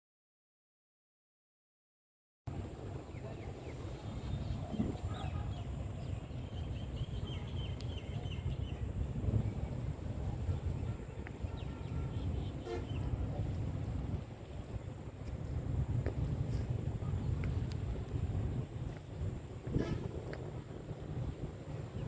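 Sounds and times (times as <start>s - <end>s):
low rumble: 2.5s - 22.0s
bird calls: 3.0s - 13.6s.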